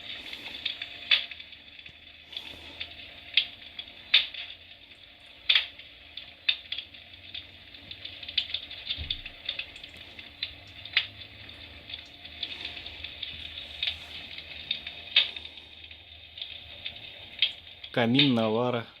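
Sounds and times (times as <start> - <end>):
crackling logs sound effect: 0.0 - 4.6, 5.4 - 18.5.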